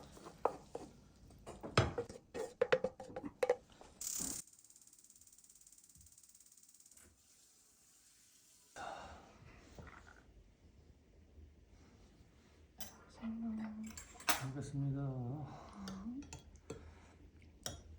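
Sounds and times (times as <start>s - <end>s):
faint steady hiss: 7.0s - 10.7s
utensils clinking on cookware: 13.8s - 14.6s.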